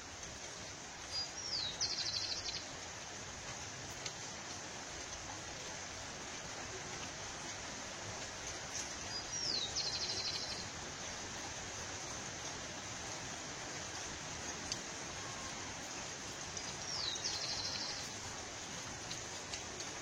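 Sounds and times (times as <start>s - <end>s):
outdoor background hiss: 0.0s - 20.0s
bird song with rapid trill: 9.1s - 10.6s, 16.9s - 18.1s.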